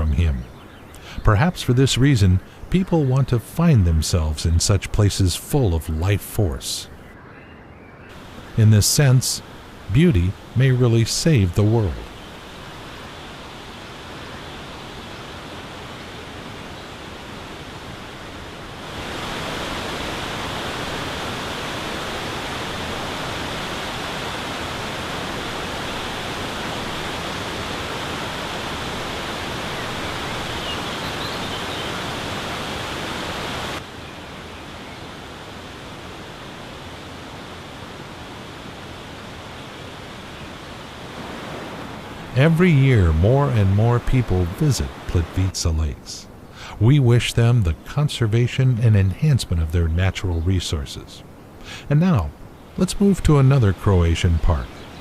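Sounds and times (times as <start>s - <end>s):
waterfall rushing: 8.1s - 46.8s.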